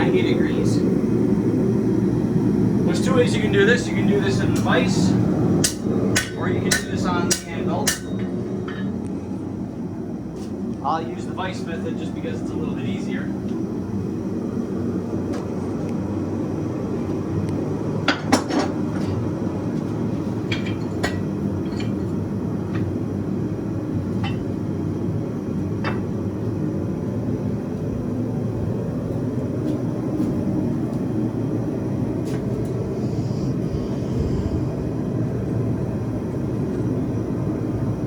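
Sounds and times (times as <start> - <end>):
gas forge roaring: 0.0 - 38.0
steel and tongs clinking: 5.6 - 8.9.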